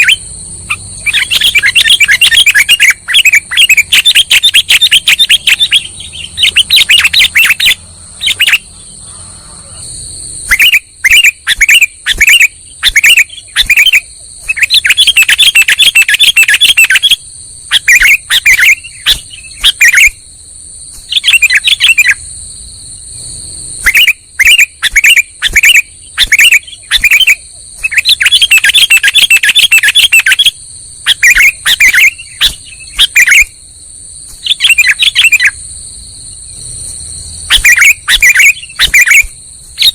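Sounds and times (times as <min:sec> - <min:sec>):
faint steady high tone: 0:00.0 - 0:11.8
bird chirping: 0:00.0 - 0:20.3, 0:20.9 - 0:33.6, 0:34.2 - 0:39.9.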